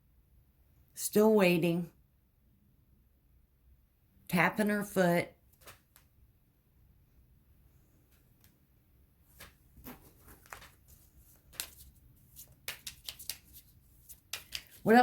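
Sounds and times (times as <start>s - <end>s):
cards being shuffled: 5.5s - 6.1s, 9.3s - 15.0s.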